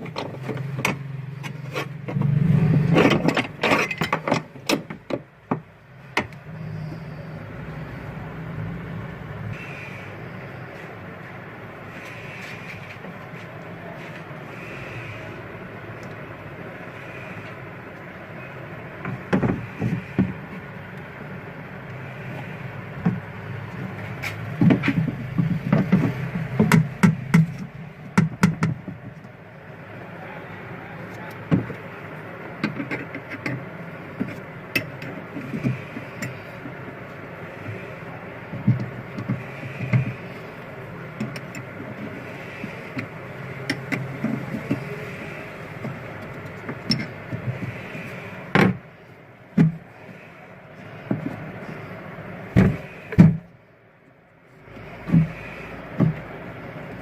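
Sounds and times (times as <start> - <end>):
steady background hum: 0.0 - 57.0
knocks and clanks of hand work: 2.0 - 6.4, 19.0 - 20.5, 23.9 - 29.3, 38.5 - 40.3, 45.8 - 48.8, 49.6 - 49.8, 54.8 - 56.3.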